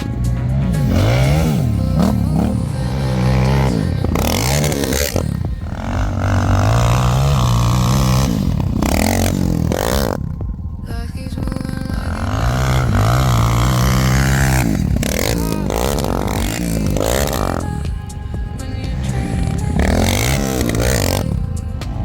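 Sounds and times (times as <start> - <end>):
quad bike engine revving: 0.0 - 22.0
rattling noise: 0.0 - 22.0.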